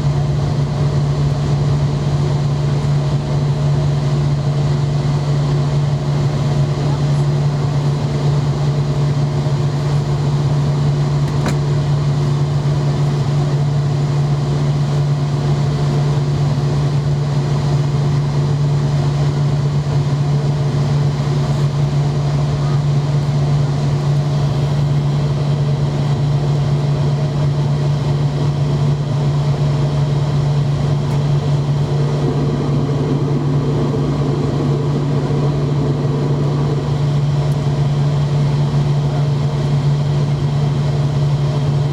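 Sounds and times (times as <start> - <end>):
aircraft engines droning: 0.0 - 41.9
low hum: 15.6 - 41.9.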